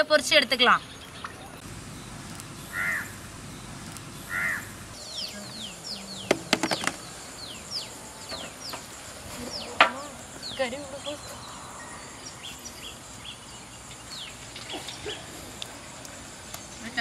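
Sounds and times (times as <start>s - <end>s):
sharp clicks: 1.6s - 4.3s
bird caw-like calls: 2.2s - 9.7s.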